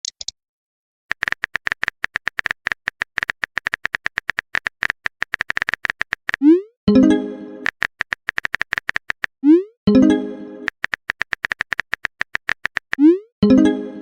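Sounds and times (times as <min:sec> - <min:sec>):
phone keyboard typing clicks: 0:00.0 - 0:00.3, 0:01.1 - 0:06.4, 0:07.6 - 0:09.3, 0:10.7 - 0:13.1.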